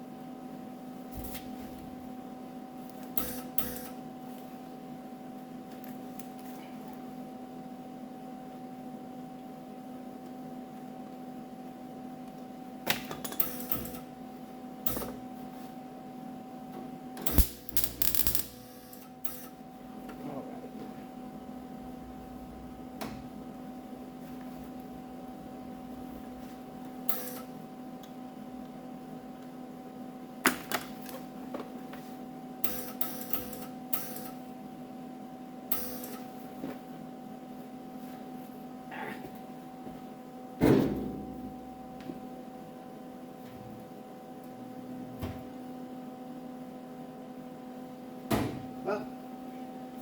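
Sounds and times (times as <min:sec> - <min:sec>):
welder crackling: 0:17.2 - 0:19.1
steady hum: 0:17.3 - 0:18.9.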